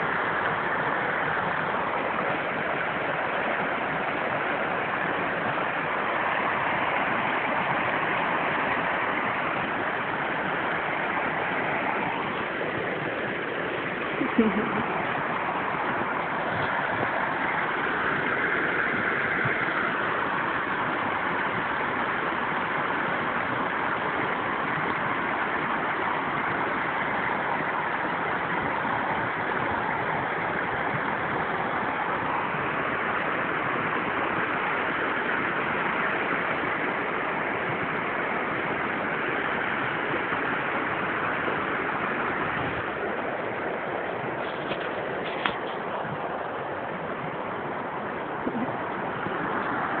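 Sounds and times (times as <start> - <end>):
steady rushing noise: 0.0 - 50.0.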